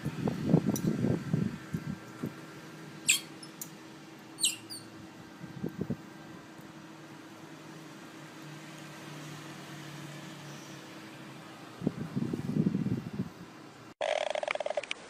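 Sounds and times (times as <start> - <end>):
otter squeaking: 3.1 - 3.6, 4.4 - 4.9
soft low otter sounds: 4.4 - 4.9.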